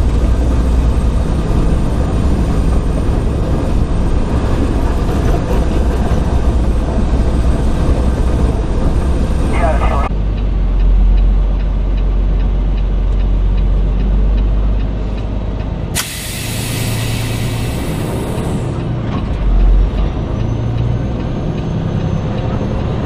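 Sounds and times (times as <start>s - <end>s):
truck engine rumbling: 0.0s - 23.0s
air brakes hiss: 16.0s - 18.7s.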